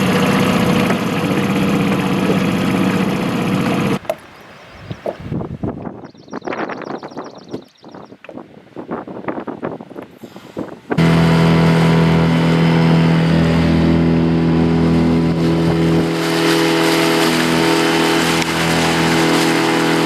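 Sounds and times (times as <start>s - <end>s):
vehicle engine running: 0.0s - 4.0s, 11.0s - 20.0s.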